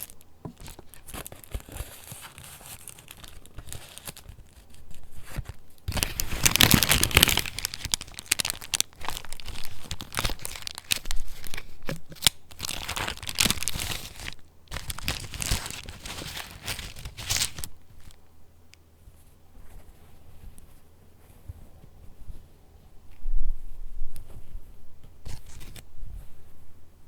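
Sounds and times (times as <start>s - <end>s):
paper pages rustling: 0.0s - 18.2s, 25.1s - 25.9s.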